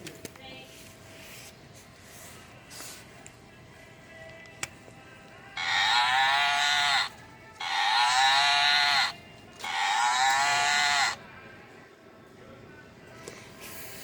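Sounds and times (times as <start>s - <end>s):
tinny toy cow mooing: 5.6s - 11.2s.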